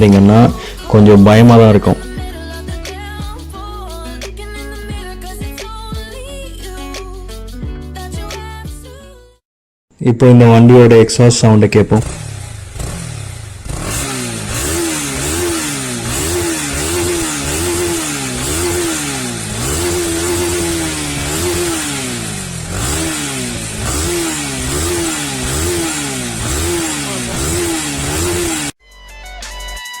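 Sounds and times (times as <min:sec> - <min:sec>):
motorcycle engine revving: 0:11.9 - 0:28.8.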